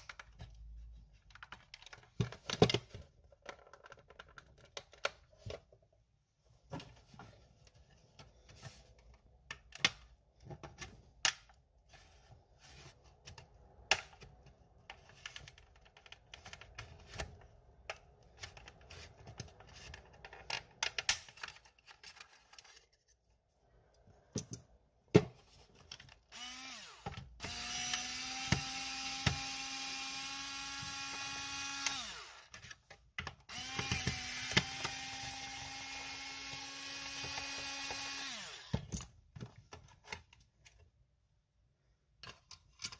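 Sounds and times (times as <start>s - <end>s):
small electric motor running: 26.4s - 32.5s, 33.5s - 38.7s
hard parts clicking and knocking: 31.9s - 40.4s.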